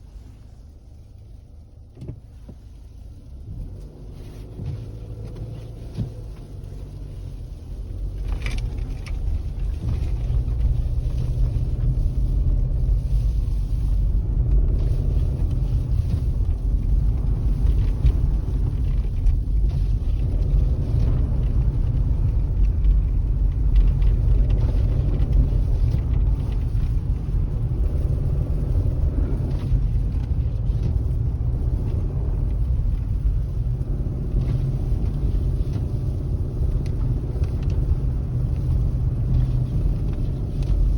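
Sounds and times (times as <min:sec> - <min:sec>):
car engine: 0:00.0 - 0:40.9
road rumble inside moving car: 0:00.0 - 0:40.9.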